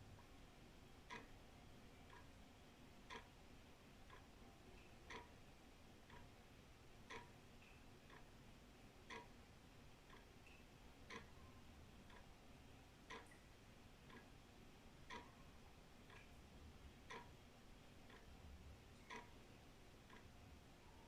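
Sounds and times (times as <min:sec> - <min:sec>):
wall clock ticking: 0:01.0 - 0:01.4, 0:02.0 - 0:02.4, 0:03.0 - 0:03.4, 0:04.0 - 0:08.4, 0:09.0 - 0:12.4, 0:13.0 - 0:13.4, 0:14.0 - 0:21.0.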